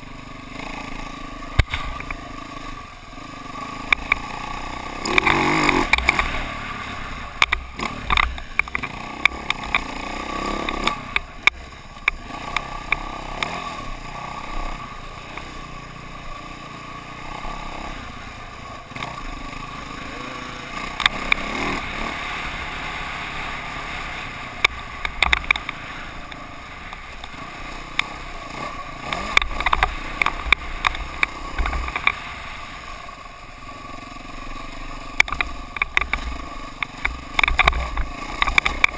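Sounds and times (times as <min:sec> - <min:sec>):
dirt bike engine running: 0:00.0 - 0:38.9
sharp clicks and knocks: 0:01.5 - 0:02.2, 0:03.8 - 0:04.3, 0:05.0 - 0:06.4, 0:07.3 - 0:10.0, 0:10.6 - 0:13.6, 0:24.6 - 0:32.3, 0:35.1 - 0:38.9.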